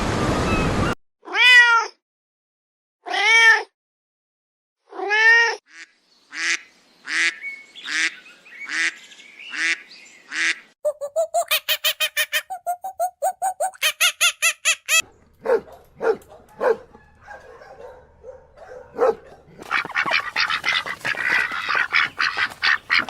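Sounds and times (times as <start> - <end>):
waterfowl honking: 19.0 - 23.0.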